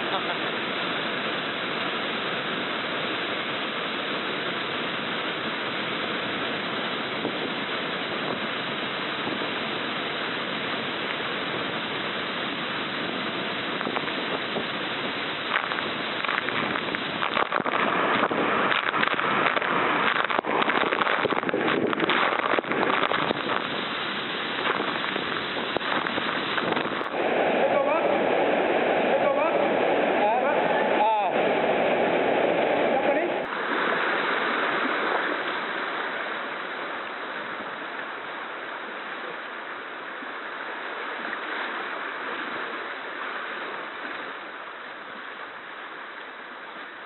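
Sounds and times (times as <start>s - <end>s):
rushing water: 0.0s - 47.0s
sharp splashes: 3.0s - 31.3s, 33.4s - 38.4s.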